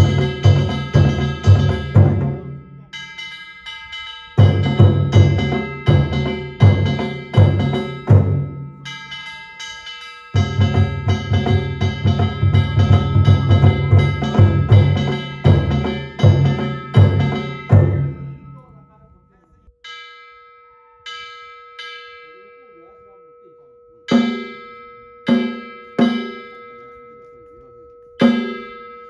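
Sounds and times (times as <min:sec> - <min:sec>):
drums playing fast rhythm: 0:00.0 - 0:03.4, 0:04.4 - 0:09.1, 0:10.3 - 0:18.9, 0:24.1 - 0:24.6, 0:25.3 - 0:26.5, 0:28.2 - 0:28.8
metal gongs ringing: 0:00.0 - 0:19.2, 0:19.8 - 0:29.0.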